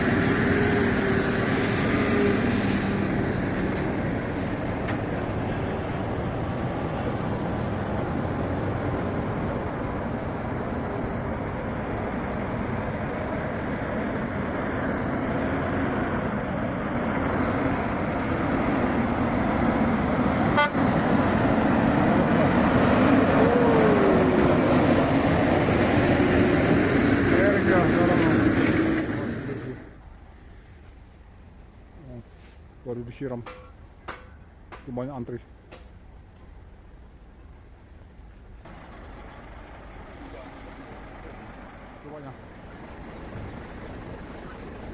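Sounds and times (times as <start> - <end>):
truck engine running: 38.5 - 44.9.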